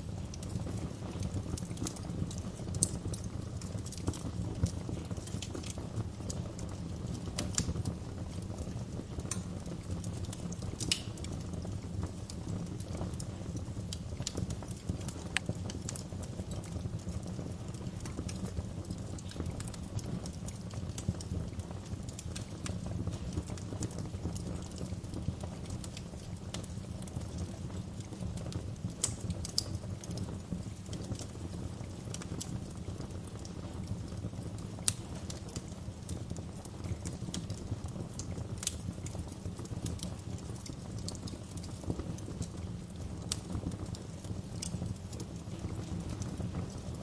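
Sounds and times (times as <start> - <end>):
fire pops and snaps: 0.0 - 47.0
wood fire crackling: 0.0 - 47.0.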